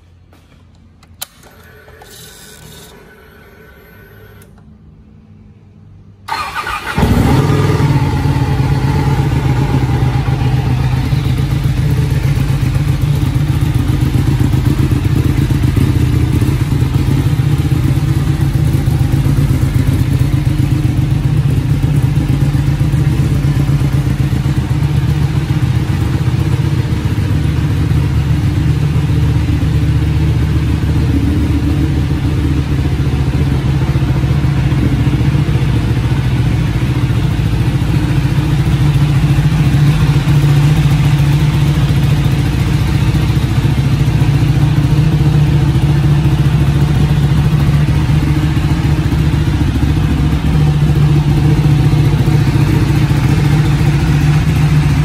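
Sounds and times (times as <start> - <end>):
motorcycle engine cranking: 1.0 - 4.6, 6.3 - 7.9
motorcycle engine idling: 6.3 - 55.0.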